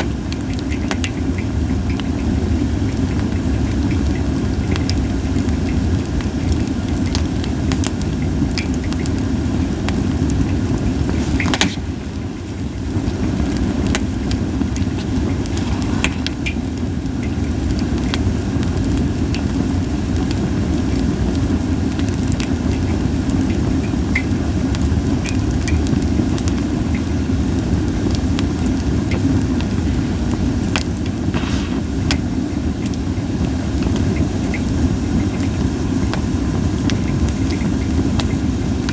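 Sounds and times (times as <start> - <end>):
campfire crackling and popping: 0.0 - 19.6, 30.3 - 35.4.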